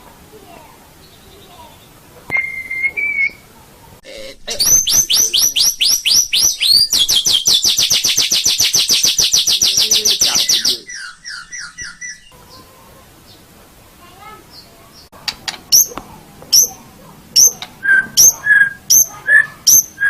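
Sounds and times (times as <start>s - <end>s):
bird singing with rapid trill: 4.5s - 13.4s, 16.5s - 16.8s, 17.4s - 20.0s.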